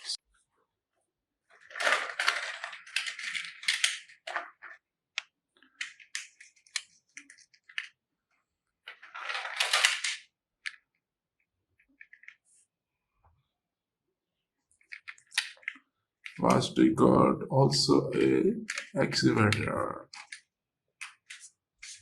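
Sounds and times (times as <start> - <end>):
plastic toys rattling and clicking: 1.5 - 8.0, 8.8 - 11.0, 11.7 - 12.5, 14.7 - 16.6, 18.6 - 22.0.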